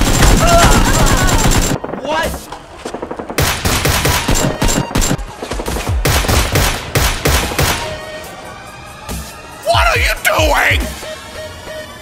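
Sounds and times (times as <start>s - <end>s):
rapid gunfire: 0.0s - 7.9s.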